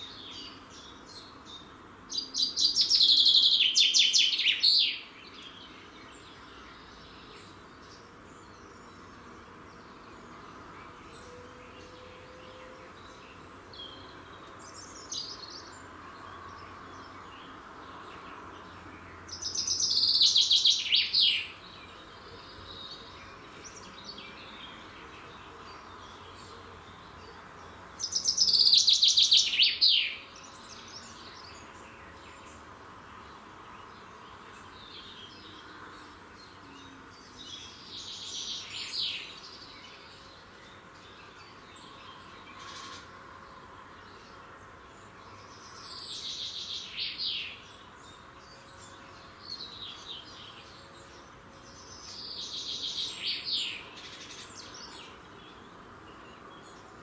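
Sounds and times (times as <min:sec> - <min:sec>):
faint background hiss: 0:00.0 - 0:57.0
songbird singing: 0:00.0 - 0:57.0.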